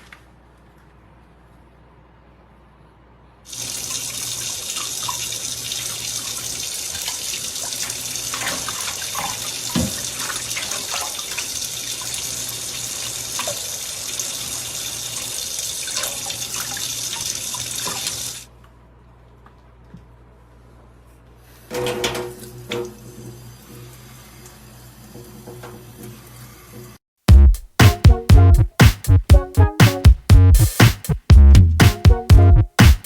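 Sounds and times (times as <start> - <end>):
running water: 3.5 - 18.5.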